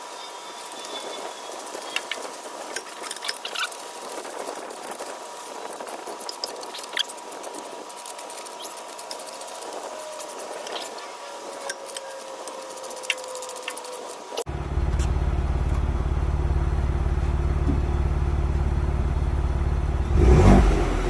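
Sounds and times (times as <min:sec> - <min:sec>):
steady hiss: 0:00.0 - 0:14.5
faint high whine: 0:00.0 - 0:20.0.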